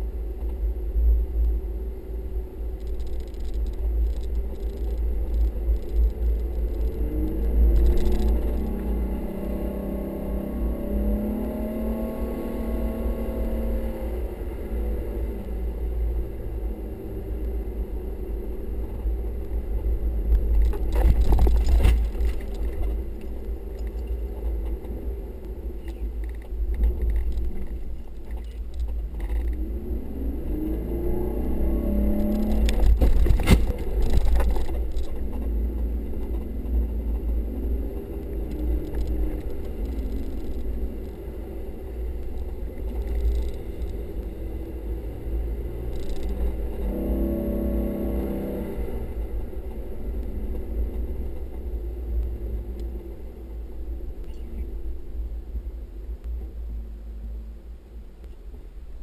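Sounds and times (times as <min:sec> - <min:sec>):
heavy low rumble: 0:00.0 - 0:59.0
vehicle engine revving: 0:02.8 - 0:17.6, 0:27.0 - 0:54.8.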